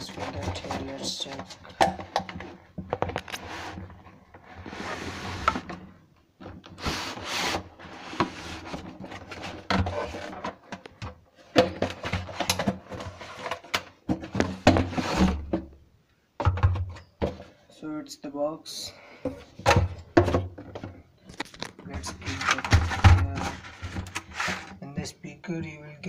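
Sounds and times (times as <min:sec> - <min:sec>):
cardboard packaging rustling: 0:21.2 - 0:24.8.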